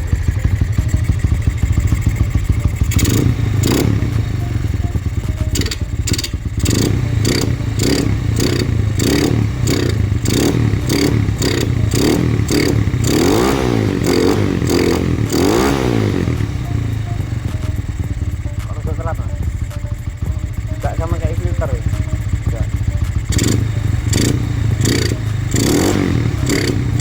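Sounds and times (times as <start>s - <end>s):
motorcycle engine idling and revving: 0.0s - 27.0s.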